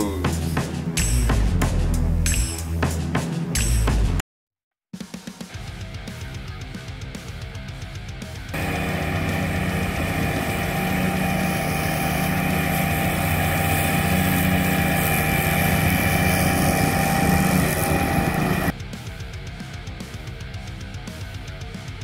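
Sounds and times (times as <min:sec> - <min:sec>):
mower diesel engine running: 0:08.6 - 0:18.7.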